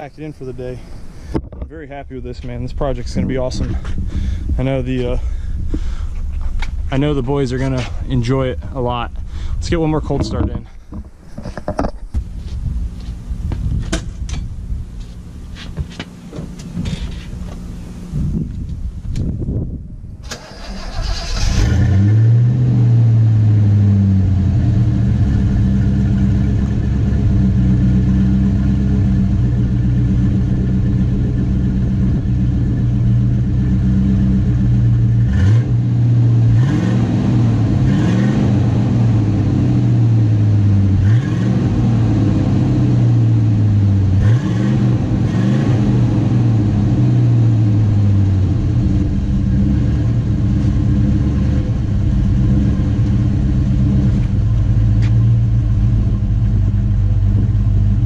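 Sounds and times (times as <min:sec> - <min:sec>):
car engine starting and idling: 0:00.0 - 0:11.2, 0:20.1 - 0:58.0
engine revving: 0:20.3 - 0:58.0.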